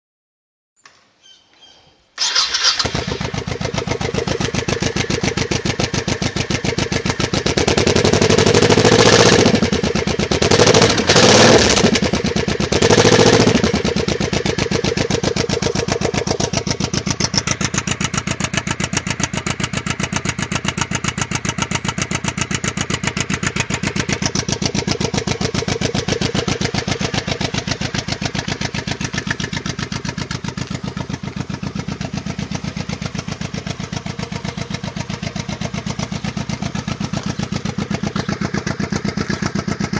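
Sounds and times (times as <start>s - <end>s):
engine starting and idling: 2.2s - 7.4s
engine revving: 2.2s - 39.9s.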